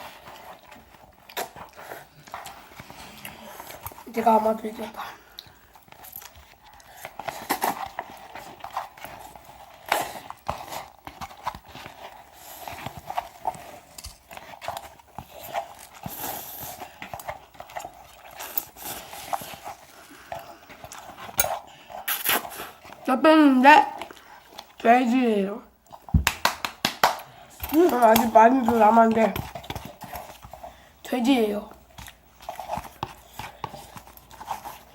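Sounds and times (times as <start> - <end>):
chewing: 0.0 - 23.1, 23.9 - 24.8, 27.2 - 34.9
noodle slurping: 5.1 - 23.1.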